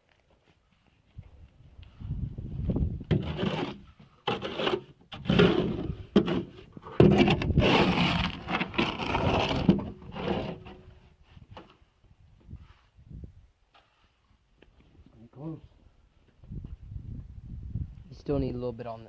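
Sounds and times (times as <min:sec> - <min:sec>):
trowel scraping concrete: 0:03.1 - 0:10.8.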